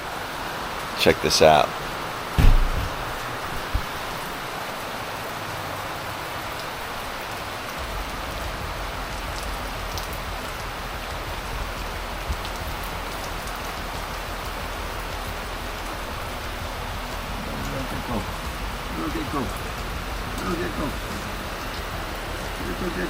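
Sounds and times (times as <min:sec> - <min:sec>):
heavy rain pouring: 0:00.0 - 0:23.0
faint drip ticks: 0:07.7 - 0:23.0
low rumble: 0:07.8 - 0:23.0.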